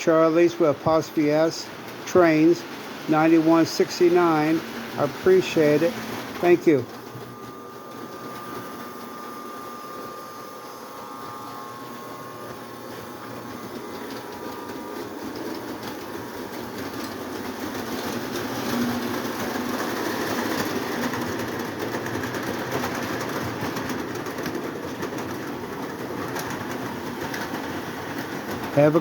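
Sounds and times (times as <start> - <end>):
electric toy trains whirring: 0.0 - 29.0.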